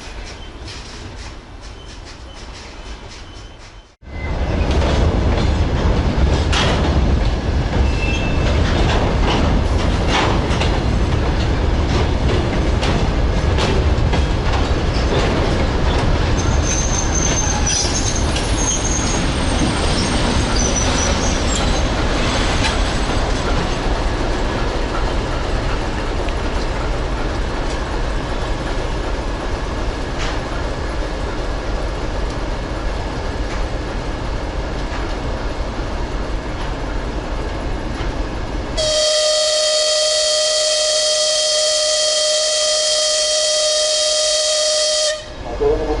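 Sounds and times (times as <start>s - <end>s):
train wheel squeals: 0.0s - 4.8s, 7.8s - 8.6s, 14.8s - 23.3s
train wheels clacking: 0.0s - 35.6s.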